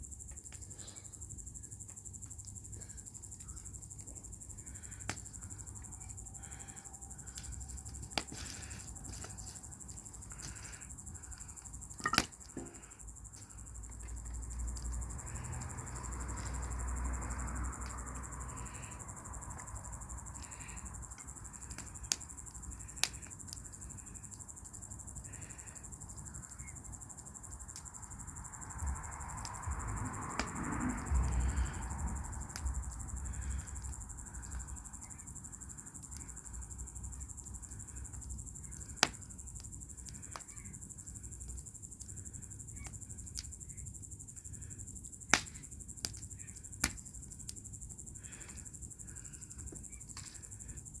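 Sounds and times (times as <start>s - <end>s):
crickets chirring: 0.0s - 51.0s
wood fire crackling and popping: 1.6s - 24.4s, 32.4s - 43.8s, 45.3s - 48.7s.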